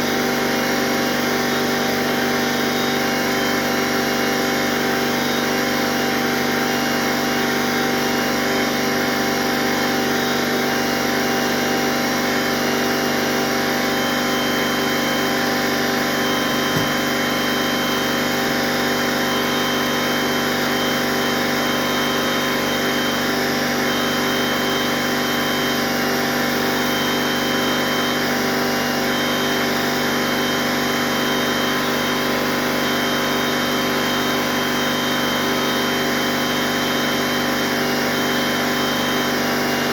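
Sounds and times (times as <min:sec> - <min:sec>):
power tool motor running: 0:00.0 - 0:39.9
short knock: 0:16.7 - 0:17.1.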